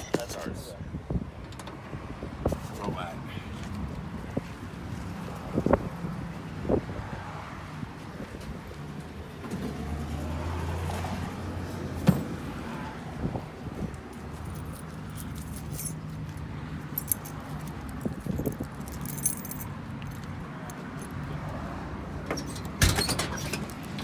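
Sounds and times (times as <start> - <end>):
light metallic clinking: 14.5 - 16.2, 16.9 - 21.2.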